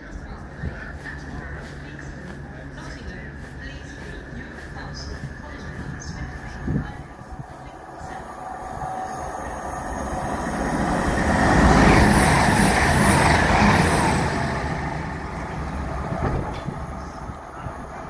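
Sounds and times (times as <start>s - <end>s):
diesel train engine: 0.0s - 18.0s.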